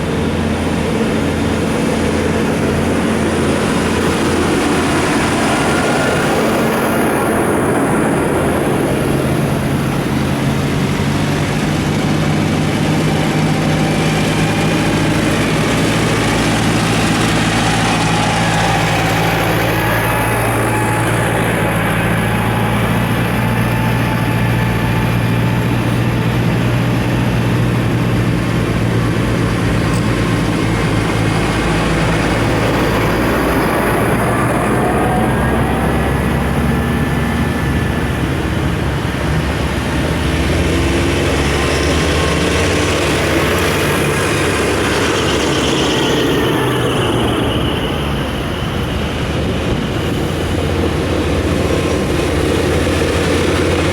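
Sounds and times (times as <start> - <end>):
tractor diesel engines driving past: 0.0 - 53.9.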